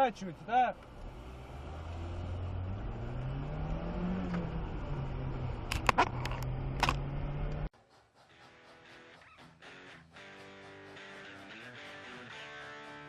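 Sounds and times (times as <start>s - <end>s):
car engine running: 0.0s - 7.7s.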